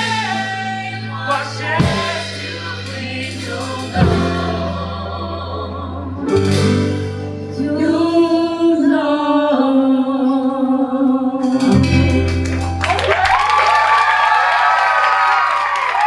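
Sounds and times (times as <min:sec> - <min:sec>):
folk-rock band playing: 0:00.0 - 0:05.4, 0:06.2 - 0:07.8, 0:11.4 - 0:13.4
voices singing harmony: 0:00.0 - 0:12.2.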